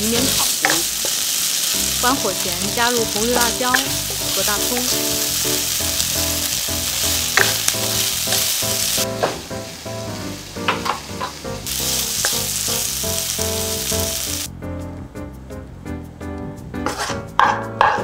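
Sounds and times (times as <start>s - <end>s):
food sizzling in a pan: 0.0s - 14.5s
background music: 1.7s - 18.0s
wooden spatula striking pan: 7.3s - 7.7s.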